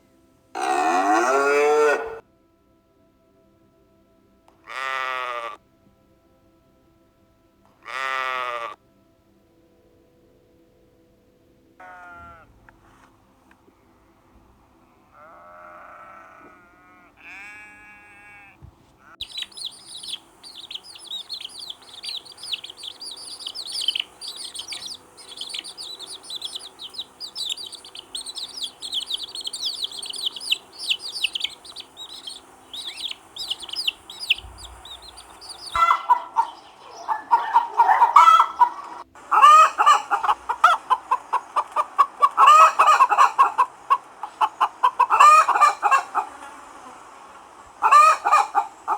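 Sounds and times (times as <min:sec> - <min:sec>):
chickens clucking: 0:00.6 - 0:02.2, 0:19.2 - 0:48.9
chicks chirping: 0:19.2 - 0:48.9.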